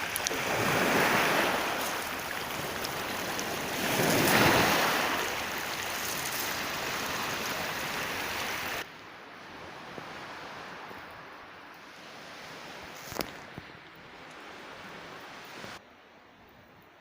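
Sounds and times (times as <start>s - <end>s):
sea surf breaking: 0.0s - 10.9s.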